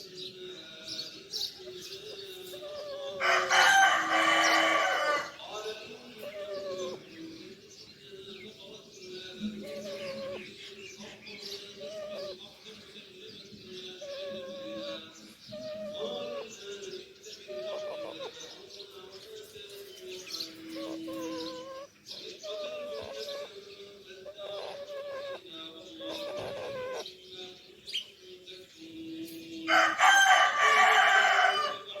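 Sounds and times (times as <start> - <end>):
faint chirping: 0.0 - 32.0
wavering bird call: 17.5 - 18.6, 20.6 - 23.6, 24.2 - 27.1.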